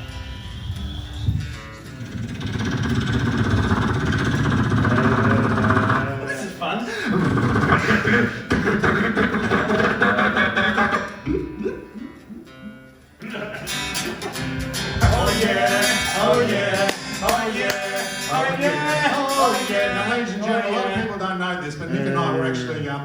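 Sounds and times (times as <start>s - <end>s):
acoustic guitar music: 0.0s - 6.6s, 10.2s - 23.0s
mouth-made noise effects: 1.9s - 6.3s, 6.9s - 19.9s
person singing: 15.0s - 21.1s, 21.9s - 22.6s.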